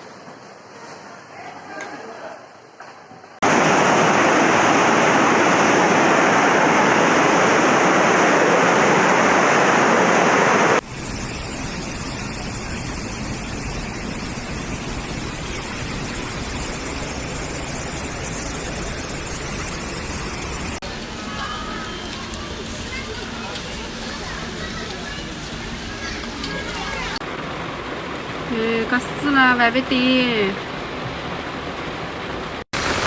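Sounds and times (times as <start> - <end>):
rushing water: 3.4 - 10.8, 27.2 - 33.0.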